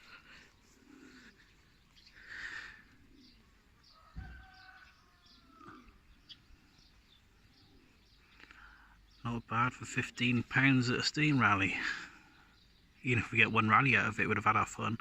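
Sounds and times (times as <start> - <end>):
bird chirping: 0.0 - 15.0
soft thump: 4.1 - 4.6.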